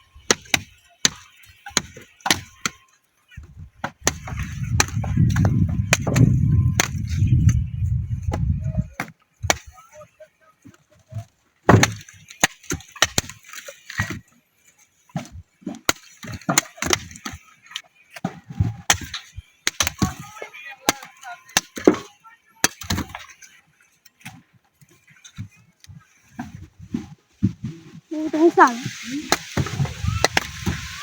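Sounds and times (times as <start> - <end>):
sharp knocks and snapping cracks: 3.8 - 7.1, 11.6 - 14.2, 15.1 - 17.8, 18.8 - 20.1
dull thud: 11.7 - 12.0.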